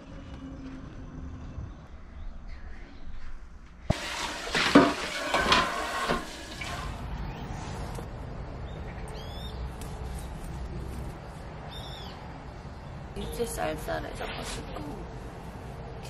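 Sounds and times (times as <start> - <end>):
tap water running into metal sink: 3.9 - 7.0
pot being rinsed: 3.9 - 7.1.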